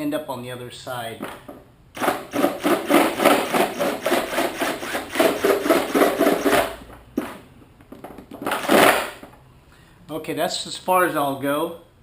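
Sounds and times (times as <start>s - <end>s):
power drill boring into plastic: 2.0s - 6.7s.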